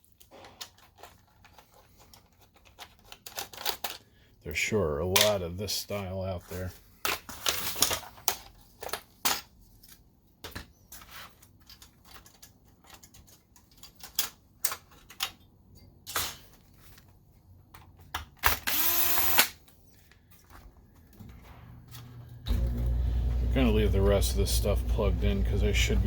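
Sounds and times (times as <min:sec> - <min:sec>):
small parts and tool clicking: 0:00.0 - 0:04.2, 0:07.0 - 0:21.3
power driver motor whine: 0:18.6 - 0:19.5, 0:22.1 - 0:26.0.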